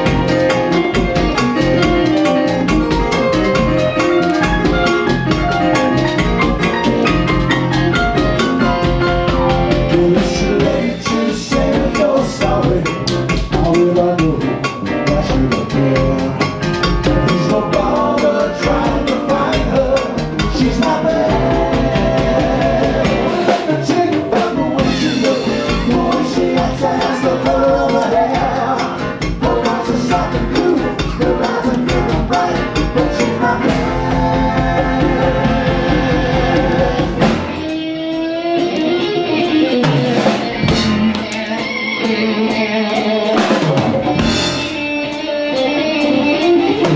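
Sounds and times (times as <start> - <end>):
drum kit: 0.0 - 46.9
guitar: 0.0 - 46.9
person singing: 9.5 - 46.9.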